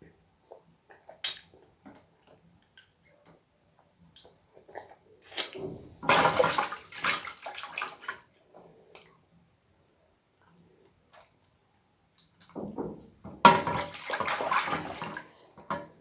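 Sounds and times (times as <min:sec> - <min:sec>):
water splashing and sloshing: 0:04.2 - 0:09.2, 0:12.2 - 0:16.0.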